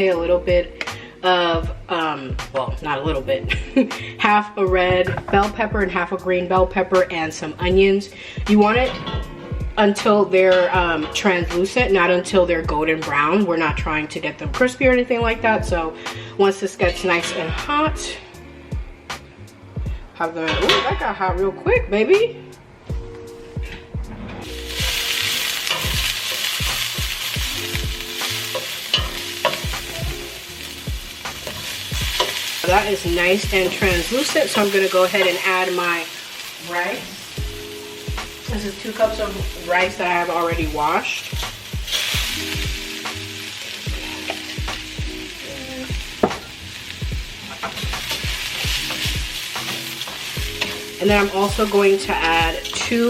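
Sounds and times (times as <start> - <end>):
music with deep bass beat: 22.9 - 34.2, 37.4 - 53.0
vegetables sizzling in oil: 24.4 - 53.0.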